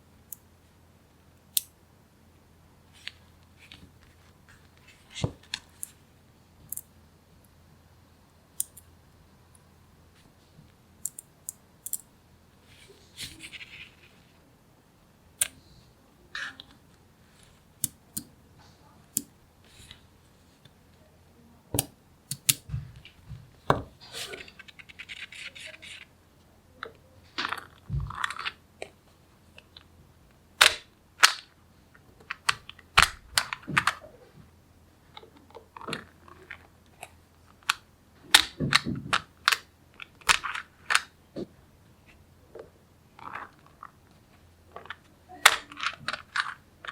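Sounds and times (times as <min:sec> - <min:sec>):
magnetic balls snapping together: 0:08.6 - 0:08.9, 0:11.0 - 0:12.1, 0:17.8 - 0:18.3, 0:21.8 - 0:22.8.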